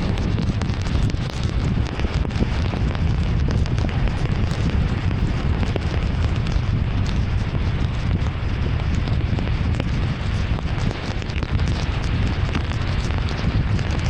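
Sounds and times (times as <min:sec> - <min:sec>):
heavy rain on a car: 0:00.0 - 0:14.0
tyres and wind on wet road: 0:00.0 - 0:14.0.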